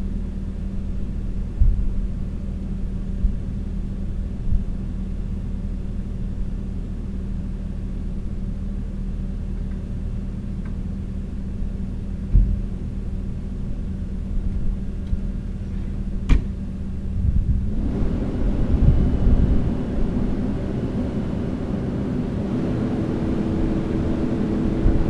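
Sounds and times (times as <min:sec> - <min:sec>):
diesel engine running: 0:00.0 - 0:25.0
low thump: 0:12.3 - 0:12.7, 0:16.2 - 0:16.6.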